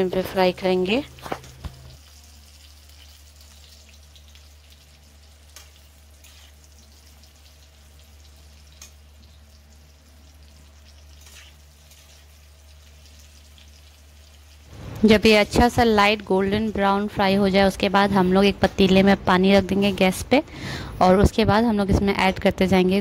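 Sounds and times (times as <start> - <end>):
food sizzling in oil: 0.0 - 20.1
metal spatula clicking against pan: 8.7 - 9.0.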